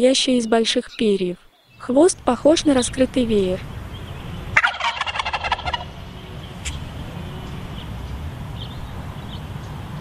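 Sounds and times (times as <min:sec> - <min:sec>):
small birds chirping: 0:00.0 - 0:10.0
turkey gobbling: 0:04.6 - 0:06.0.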